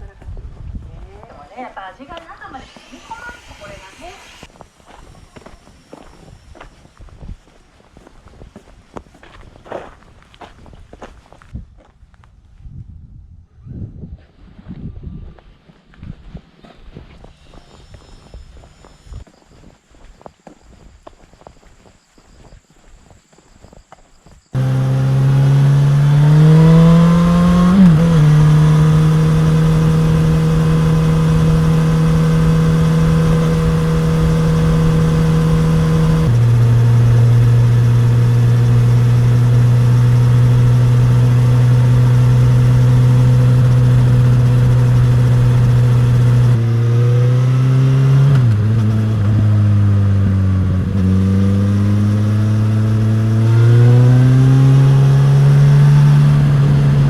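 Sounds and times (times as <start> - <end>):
motorcycle engine and exhaust: 24.6 - 57.0.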